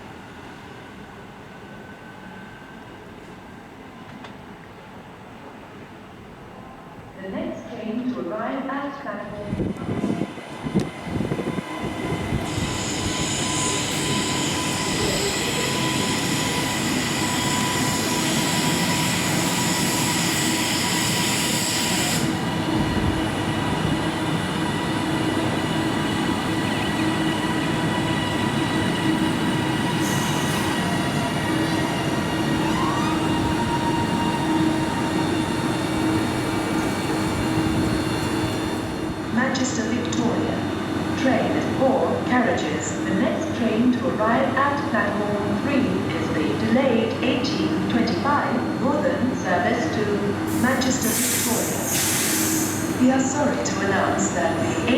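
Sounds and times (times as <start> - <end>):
train rumble with whining tones: 9.2 - 54.9
high hiss: 50.5 - 53.0.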